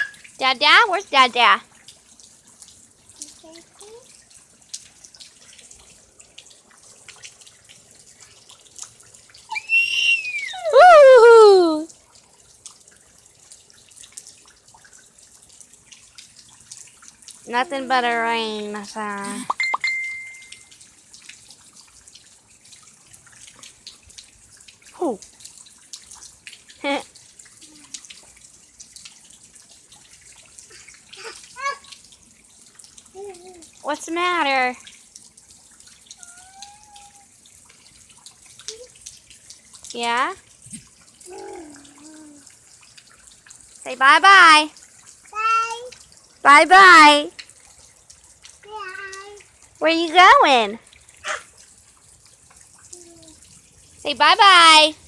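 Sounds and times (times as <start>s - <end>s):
child squealing: 0.0s - 0.2s, 9.5s - 11.9s, 31.2s - 32.0s, 36.2s - 37.3s, 41.3s - 42.4s, 51.2s - 51.5s
rain pattering: 0.0s - 55.0s.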